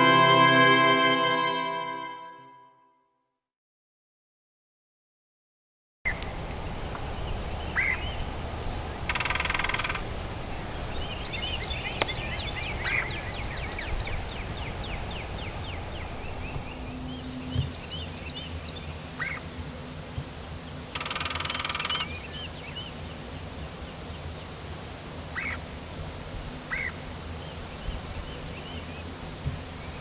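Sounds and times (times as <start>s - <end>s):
steady low rumble: 6.1s - 20.8s
rapid buzzing bird trill: 6.1s - 30.0s
wild birds chirping: 6.1s - 30.0s.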